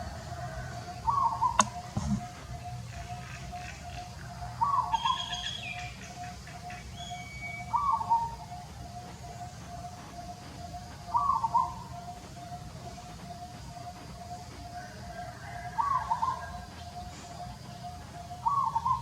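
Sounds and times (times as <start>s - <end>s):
higher bird chirps: 0.0s - 19.0s
steady pulsing background tone: 0.0s - 19.0s
sharp click: 1.6s - 2.2s.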